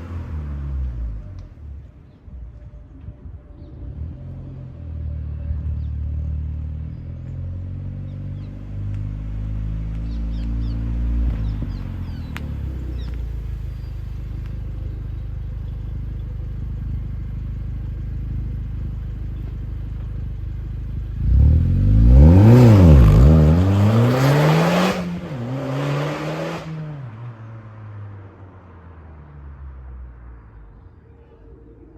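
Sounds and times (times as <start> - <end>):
car engine revving: 20.8 - 27.9.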